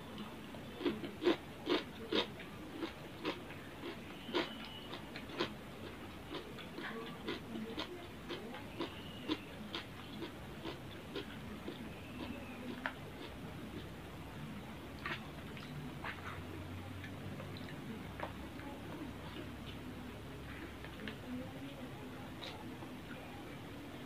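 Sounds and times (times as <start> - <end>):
person chewing food: 0.1 - 16.4.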